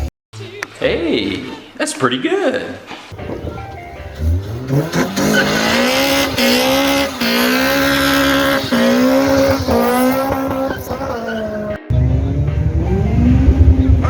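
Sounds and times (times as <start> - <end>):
car engine revving: 3.1 - 14.0.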